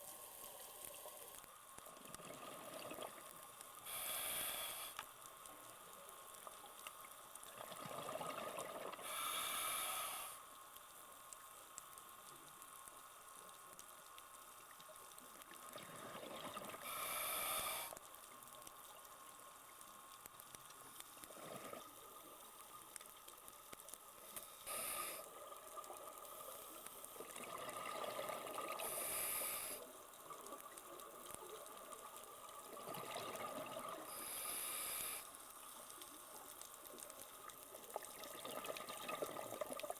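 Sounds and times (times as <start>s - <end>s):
exhaled bubbles underwater: 2.0s - 3.3s, 7.5s - 9.0s, 15.7s - 16.9s, 27.2s - 29.0s, 32.5s - 34.1s, 37.9s - 39.9s
diver inhaling through regulator: 3.8s - 5.0s, 9.0s - 10.4s, 16.8s - 18.0s, 24.5s - 25.3s, 28.8s - 29.9s, 34.1s - 35.3s.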